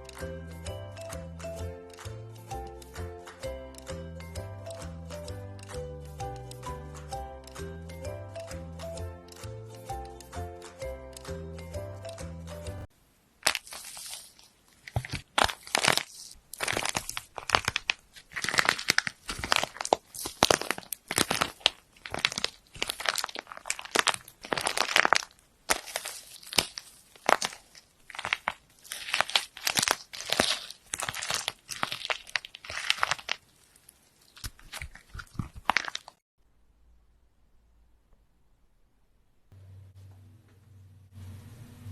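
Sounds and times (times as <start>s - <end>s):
crunchy slime crackling: 13.4s - 36.2s.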